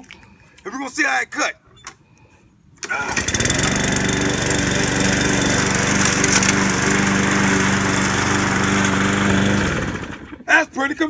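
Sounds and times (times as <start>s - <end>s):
recoil cord pull: 2.8s - 7.6s
lawnmower engine running: 2.8s - 10.7s.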